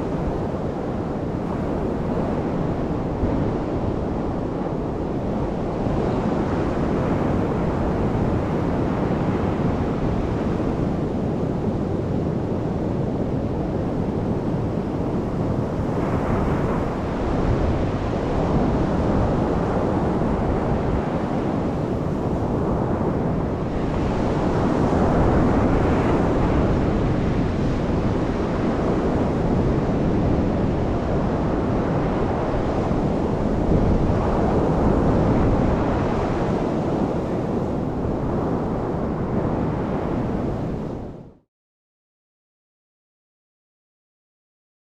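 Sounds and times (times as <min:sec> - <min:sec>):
wind buffeting the microphone: 0:00.0 - 0:41.4
ocean surf breaking on sand: 0:15.8 - 0:40.9.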